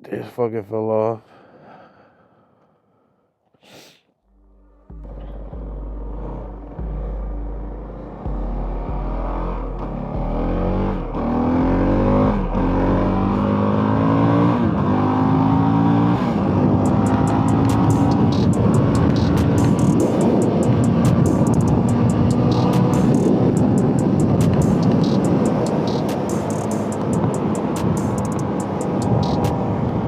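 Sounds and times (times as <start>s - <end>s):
motorcycle engine accelerating: 4.6s - 30.0s
wind noise on microphone: 16.4s - 26.1s.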